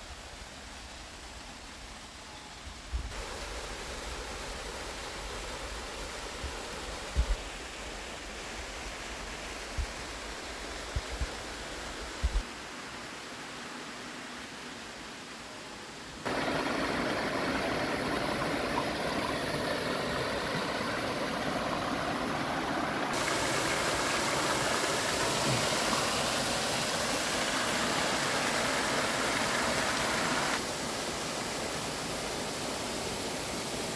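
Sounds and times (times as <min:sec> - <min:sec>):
waterfall roaring: 0:16.2 - 0:33.9.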